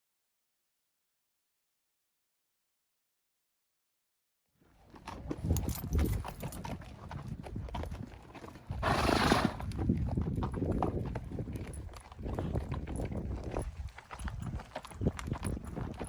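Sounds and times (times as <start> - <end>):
mule hooves clip-clopping: 4.6 - 16.0.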